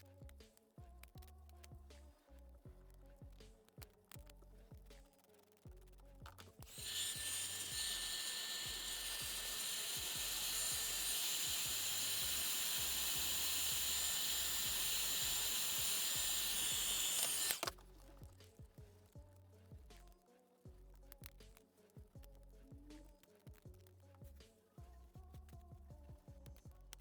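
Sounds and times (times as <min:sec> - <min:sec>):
small electric tool whining: 0:06.6 - 0:17.8.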